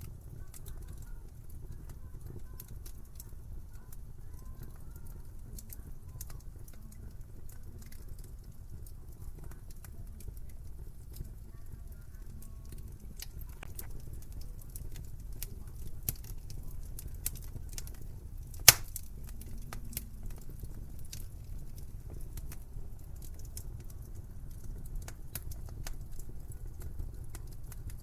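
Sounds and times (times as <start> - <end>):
wood fire crackling: 0.0 - 28.0
sharp pops of burning wood: 12.7 - 28.0.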